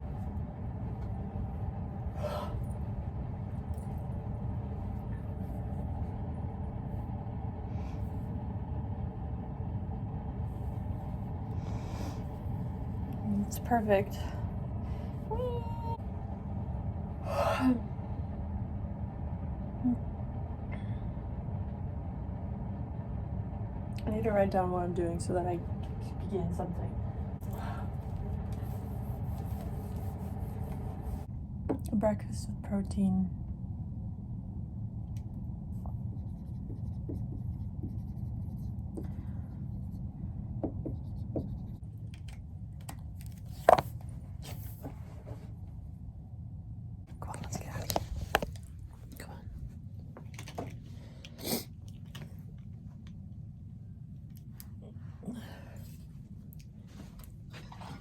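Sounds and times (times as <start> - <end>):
low room hum: 0.0 - 58.0
pen scratching on paper: 36.2 - 38.8.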